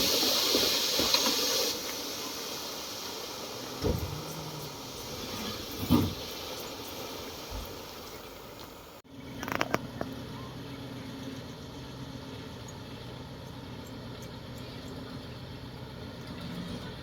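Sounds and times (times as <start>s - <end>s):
diesel engine running: 3.4s - 17.0s.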